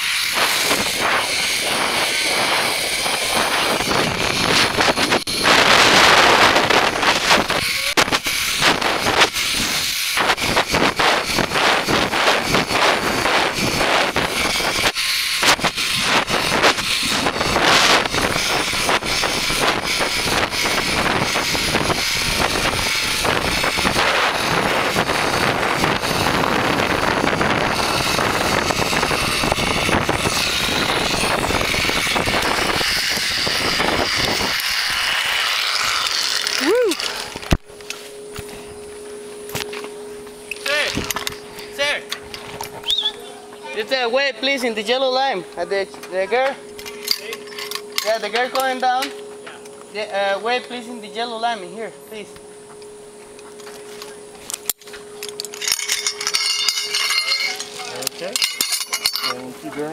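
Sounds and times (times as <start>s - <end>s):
zipline trolley on cable: 0.0s - 51.7s, 52.7s - 59.9s
wind buffeting microphone: 0.2s - 35.2s.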